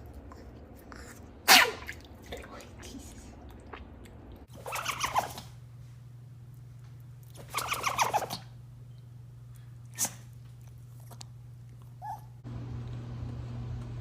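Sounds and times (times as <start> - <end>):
steady low hum: 0.0 - 14.0
dog sneezing: 1.4 - 2.0, 9.9 - 10.3.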